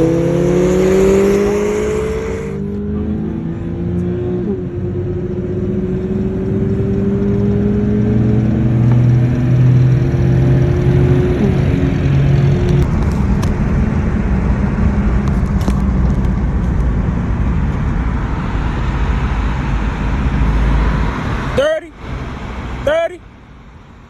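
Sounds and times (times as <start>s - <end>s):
car engine running: 0.0s - 24.0s
low rumble of road and wind: 0.0s - 24.0s.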